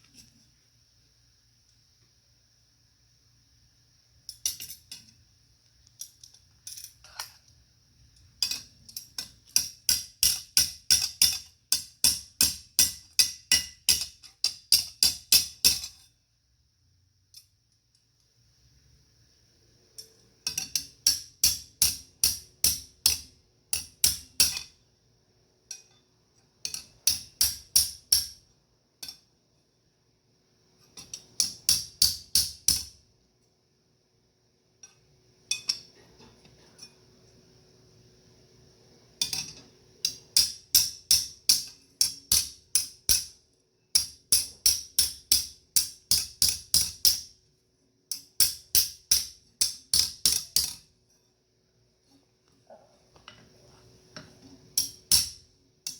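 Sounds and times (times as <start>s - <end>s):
hammer striking metal on anvil: 54.8s - 55.9s.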